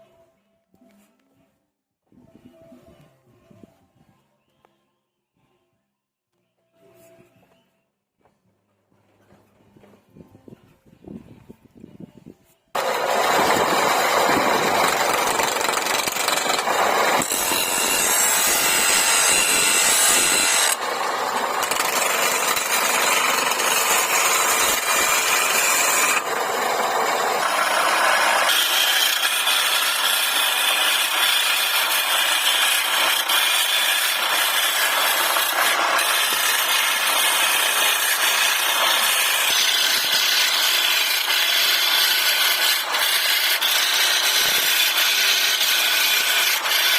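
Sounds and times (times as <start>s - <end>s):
lathe tool scraping wood: 12.8s - 46.9s.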